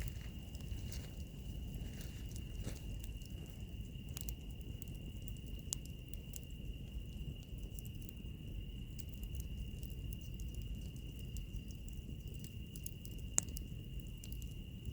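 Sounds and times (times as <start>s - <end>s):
wood fire crackling and popping: 0.0s - 14.9s.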